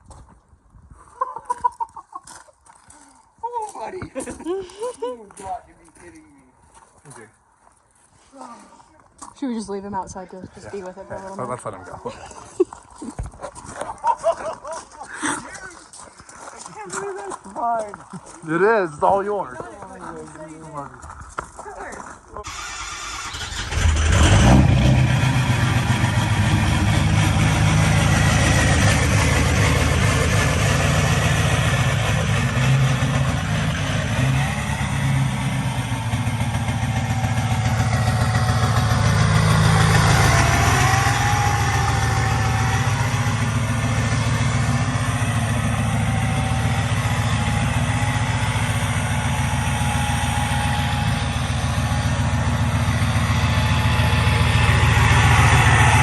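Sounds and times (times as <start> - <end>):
diesel engine starting and revving: 22.4 - 56.0.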